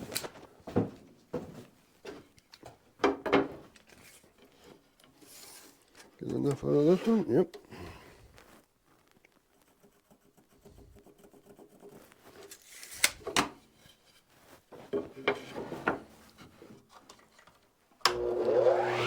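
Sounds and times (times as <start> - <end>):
radial arm saw motor whine: 18.1 - 19.0.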